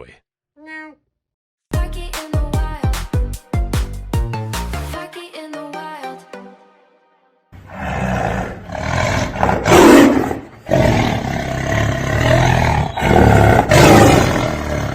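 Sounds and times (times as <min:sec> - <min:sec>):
big cat roaring: 0:07.6 - 0:14.9.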